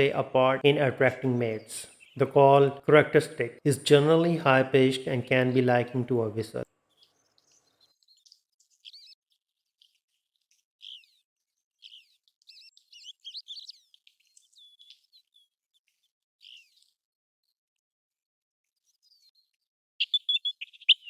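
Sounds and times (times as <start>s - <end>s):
plover whistled calls: 20.0s - 21.0s.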